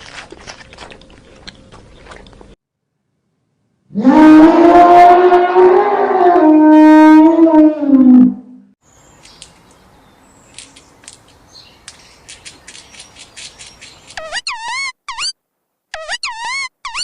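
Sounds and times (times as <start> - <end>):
animal chirps and clicks: 10.5 - 15.3.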